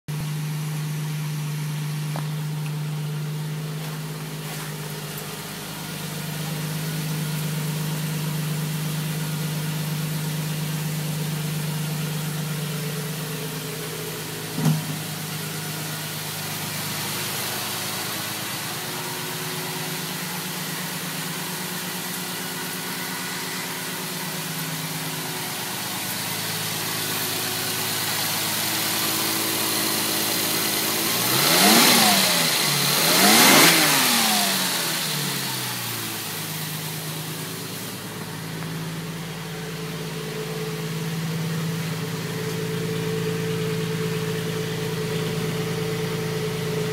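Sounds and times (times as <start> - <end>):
car engine idling: 0.0 - 46.9
short thump: 14.6 - 15.1.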